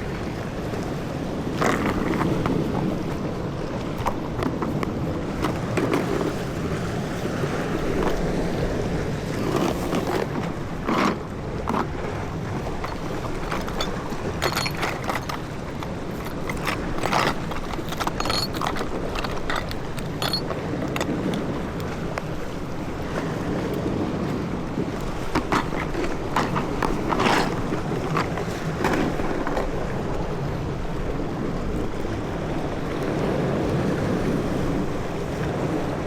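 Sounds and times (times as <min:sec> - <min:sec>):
water noise: 0:00.0 - 0:36.0
wind: 0:00.0 - 0:36.0
clicks and knocks: 0:12.7 - 0:21.4.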